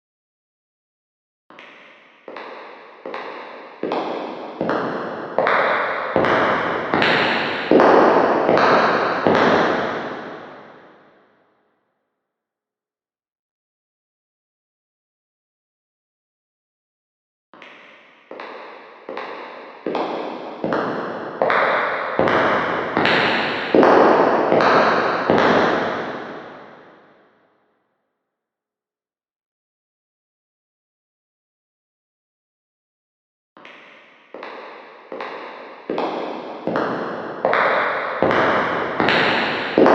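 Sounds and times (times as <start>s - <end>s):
echoing footsteps: 1.8s - 10.8s, 17.9s - 26.9s, 34.2s - 39.9s.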